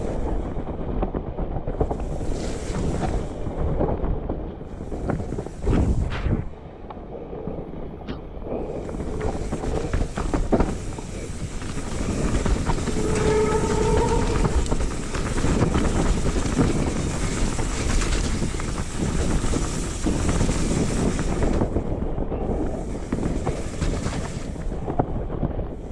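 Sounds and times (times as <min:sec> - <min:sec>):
bike tyre noise on trail: 0:00.0 - 0:25.9
wind rush: 0:00.0 - 0:25.9
bike rattling: 0:08.4 - 0:25.8
brief squeal: 0:12.8 - 0:15.4.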